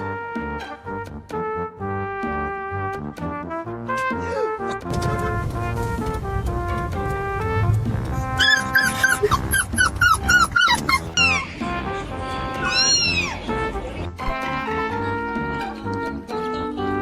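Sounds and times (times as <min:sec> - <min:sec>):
background music: 0:00.0 - 0:17.0
cat meowing: 0:12.6 - 0:13.5.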